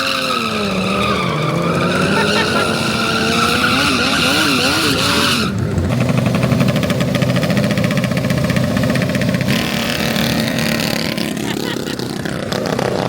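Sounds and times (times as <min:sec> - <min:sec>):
mini bike engine running close: 0:00.0 - 0:13.0
mini bike engines revving: 0:00.0 - 0:13.0.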